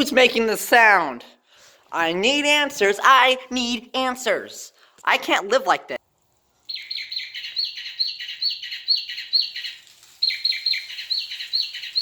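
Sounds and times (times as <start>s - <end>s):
recorded bird chirps: 6.5s - 12.0s.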